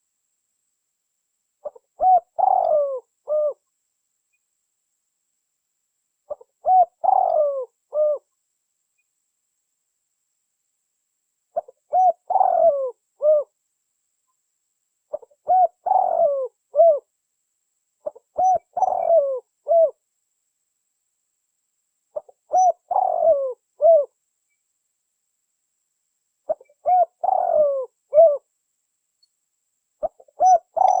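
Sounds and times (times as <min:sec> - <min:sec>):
dove cooing: 0:01.6 - 0:03.6, 0:06.3 - 0:08.3, 0:11.6 - 0:13.6, 0:15.1 - 0:17.1, 0:18.0 - 0:20.0, 0:22.2 - 0:24.2, 0:26.5 - 0:28.5, 0:30.0 - 0:31.0.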